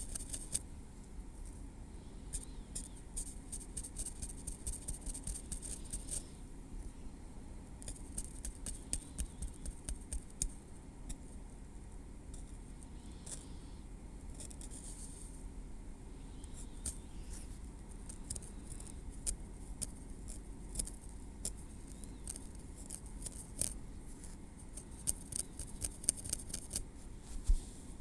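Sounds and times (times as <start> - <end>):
tweezers clicking in hair: 7.8 - 10.6, 25.0 - 26.9.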